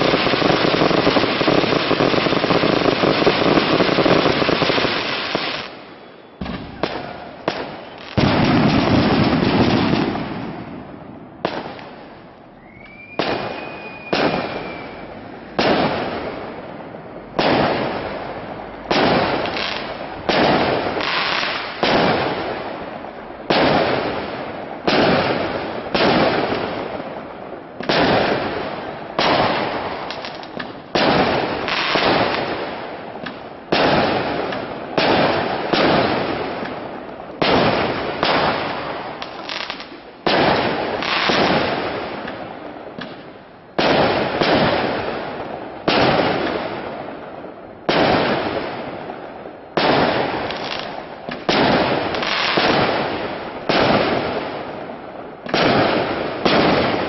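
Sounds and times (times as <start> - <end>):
fireworks bursting with echo: 0.0 - 57.0
rising firework whistle: 5.1 - 9.3, 12.4 - 16.5.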